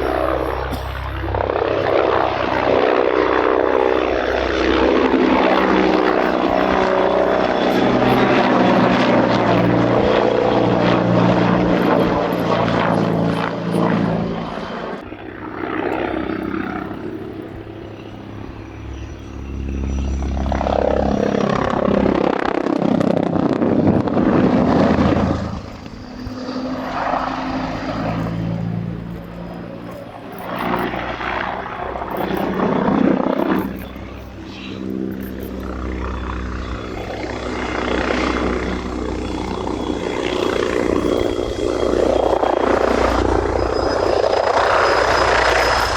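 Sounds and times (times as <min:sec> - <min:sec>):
helicopter rotor and turbine drone: 0:00.0 - 0:45.9.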